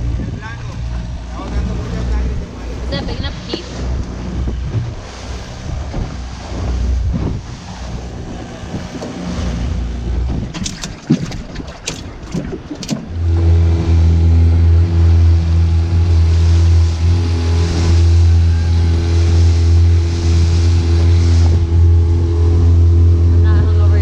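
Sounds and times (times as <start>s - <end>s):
wind-like rushing: 0.0s - 13.2s
engine running steadily: 0.0s - 24.0s.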